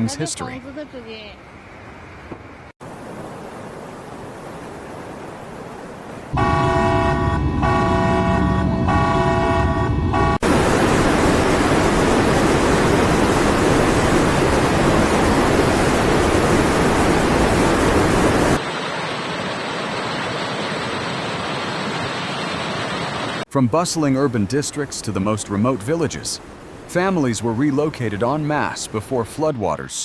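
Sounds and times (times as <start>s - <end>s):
loud steady rushing noise: 6.3s - 23.4s
vehicle horn: 6.4s - 10.4s.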